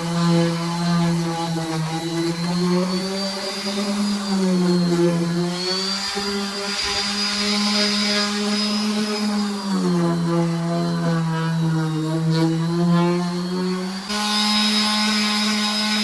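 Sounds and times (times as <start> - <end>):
power sander on wood: 0.0 - 16.0.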